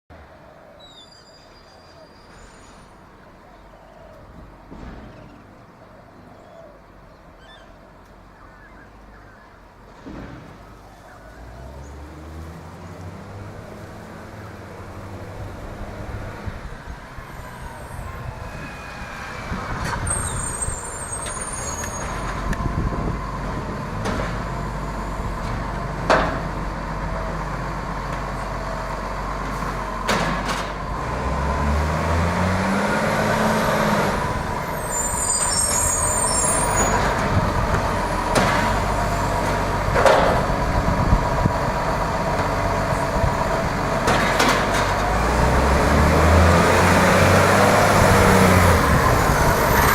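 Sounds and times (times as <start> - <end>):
sharp bangs and knocks: 4.6 - 5.5, 10.0 - 10.8, 29.5 - 30.8, 36.8 - 40.7, 44.0 - 45.2
garbage truck engine revving: 11.4 - 49.9.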